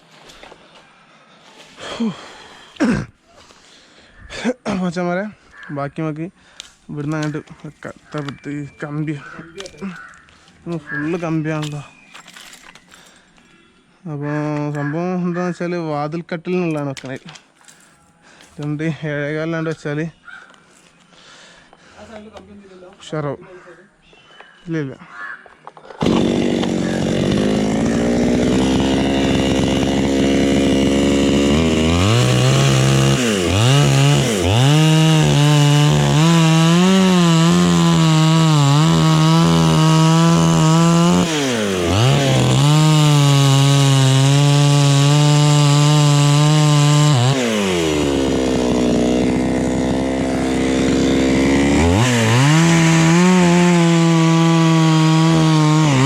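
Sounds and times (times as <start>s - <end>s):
chainsaw revving and cutting wood: 26.0s - 56.0s.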